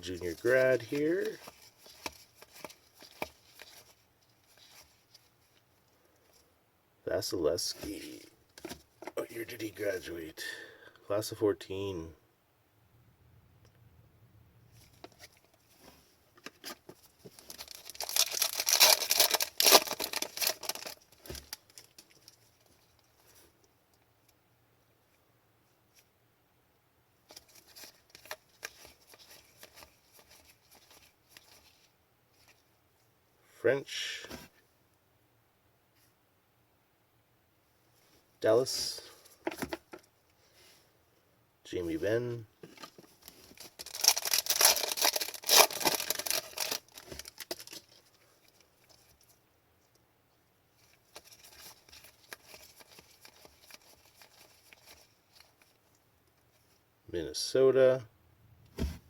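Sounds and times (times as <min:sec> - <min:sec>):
trading cards rustling and clicking: 0:00.0 - 0:05.3, 0:16.4 - 0:22.4, 0:42.7 - 0:49.2, 0:50.8 - 0:55.8
foil pack tearing: 0:17.6 - 0:21.4, 0:43.8 - 0:47.8.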